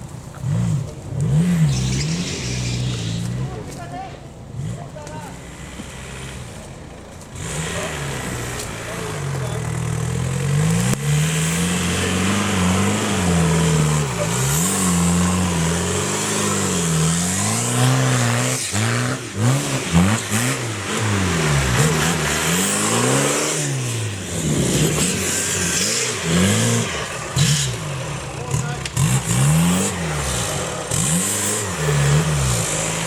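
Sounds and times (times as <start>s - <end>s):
off-road vehicle engine revving: 0.0s - 33.0s.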